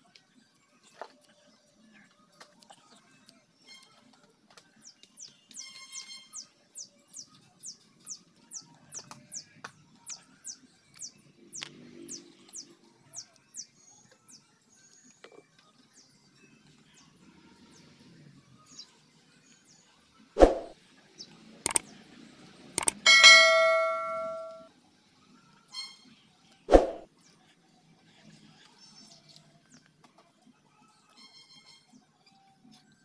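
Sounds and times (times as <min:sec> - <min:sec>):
bird repeating high falling note: 0:23.0 - 0:24.7.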